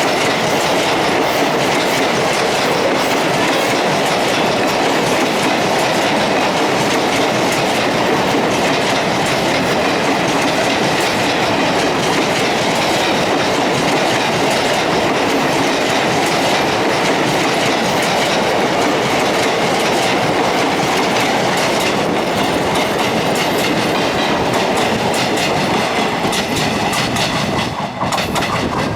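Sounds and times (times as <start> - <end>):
train rumble: 0.0 - 28.9
train wheels clattering over rail joints: 0.0 - 28.9.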